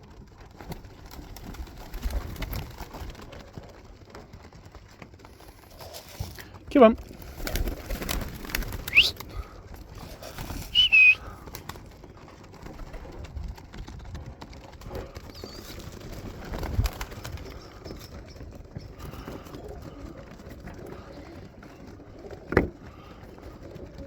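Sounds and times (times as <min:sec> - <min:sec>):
pigeons cooing: 0:07.2 - 0:12.2, 0:14.8 - 0:24.0
short high whistle-like sounds: 0:08.9 - 0:09.2, 0:10.7 - 0:11.2.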